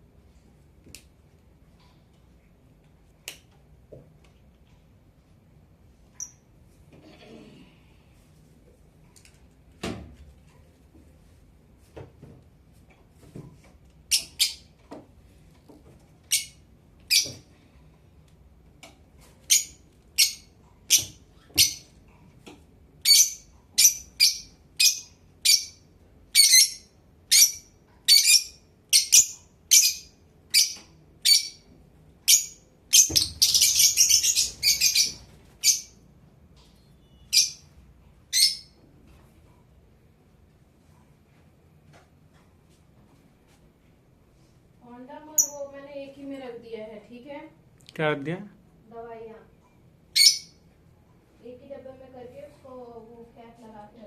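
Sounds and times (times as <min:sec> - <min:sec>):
lovebirds chirping: 0:26.4 - 0:36.0
lovebirds chattering: 0:32.3 - 0:36.0.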